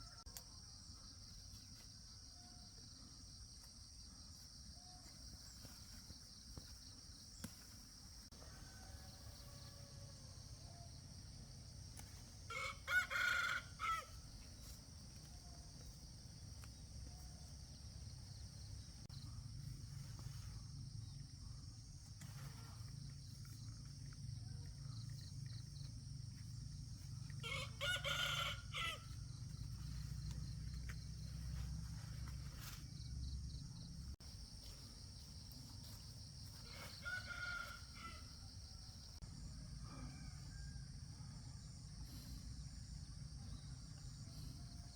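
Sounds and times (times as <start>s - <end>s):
rooster crowing: 8.3s - 11.0s, 12.4s - 14.2s, 27.4s - 29.3s, 36.6s - 38.5s, 39.5s - 41.8s.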